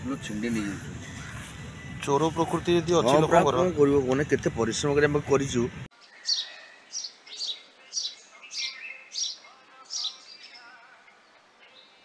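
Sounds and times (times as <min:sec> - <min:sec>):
songbird chirping: 0:05.9 - 0:12.0.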